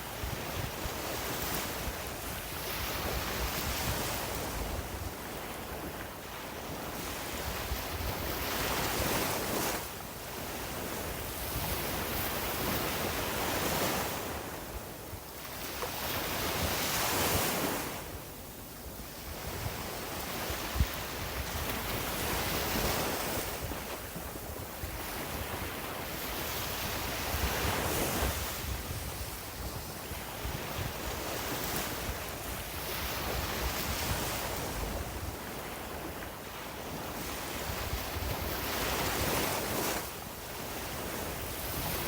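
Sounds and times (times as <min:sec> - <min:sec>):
wind buffeting microphone: 0:19.3 - 0:36.2.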